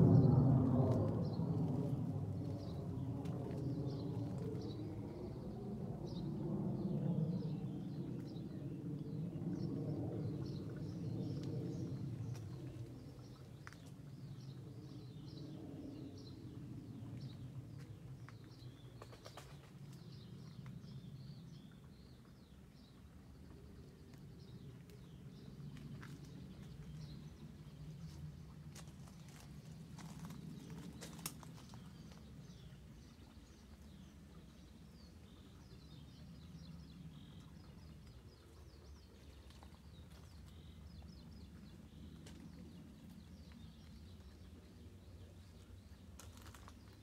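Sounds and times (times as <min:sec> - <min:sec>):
low background rumble: 0:00.0 - 0:19.2.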